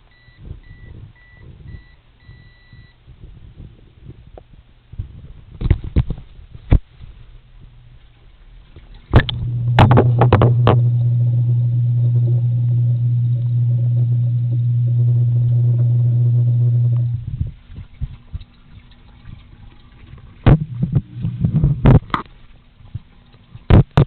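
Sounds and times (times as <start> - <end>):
microwave humming: 9.1 - 22.1.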